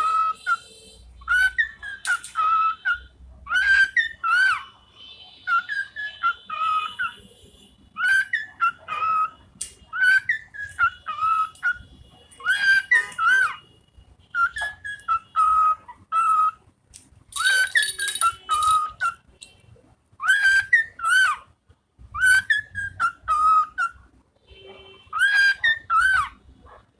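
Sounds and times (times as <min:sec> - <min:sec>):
bird whistling song: 0:00.0 - 0:04.6, 0:05.5 - 0:07.2, 0:08.0 - 0:11.8, 0:12.4 - 0:13.6, 0:14.3 - 0:16.6, 0:17.3 - 0:19.3, 0:20.2 - 0:21.4, 0:22.1 - 0:24.0, 0:25.1 - 0:26.4.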